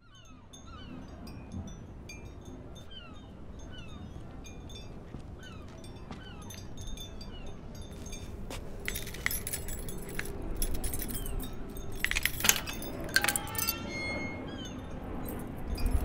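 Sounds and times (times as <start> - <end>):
keys jangling: 8.0 - 14.4
key working into a lock: 8.9 - 14.2.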